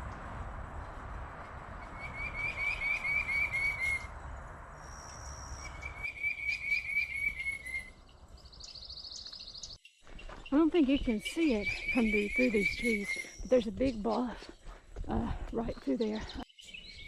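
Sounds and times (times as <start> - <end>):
rushing background noise: 0.0 - 6.2.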